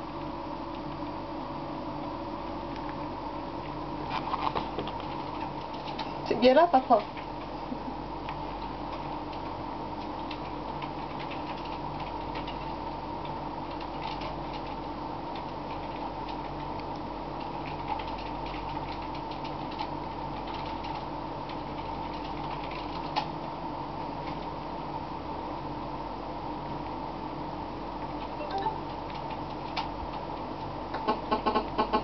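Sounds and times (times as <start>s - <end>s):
steady electrical hum: 0.0s - 32.0s
kitten chewing: 4.0s - 6.1s.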